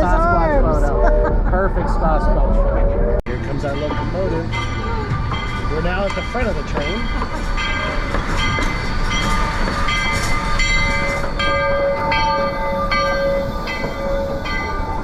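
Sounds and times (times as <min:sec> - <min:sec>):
steam locomotive bell ringing: 0:03.3 - 0:15.0.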